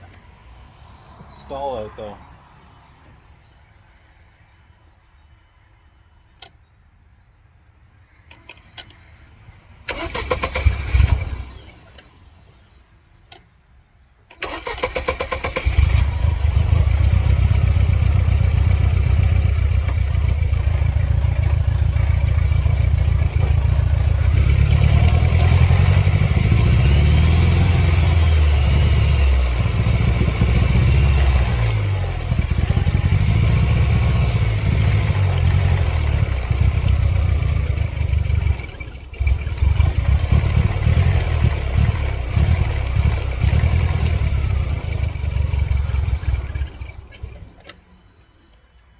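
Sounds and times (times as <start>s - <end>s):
engine cranking on starter: 9.9s - 12.6s, 14.2s - 48.7s
engine idling roughly: 15.6s - 26.6s, 32.0s - 47.7s.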